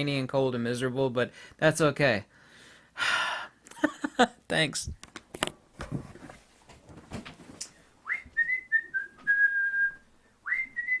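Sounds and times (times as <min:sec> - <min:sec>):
person whistling: 0:08.0 - 0:11.0.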